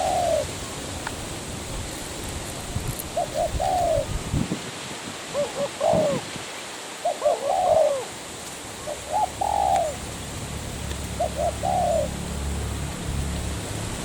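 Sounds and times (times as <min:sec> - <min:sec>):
dove cooing: 0:00.0 - 0:00.6, 0:03.1 - 0:04.3, 0:05.2 - 0:06.4, 0:07.0 - 0:12.4.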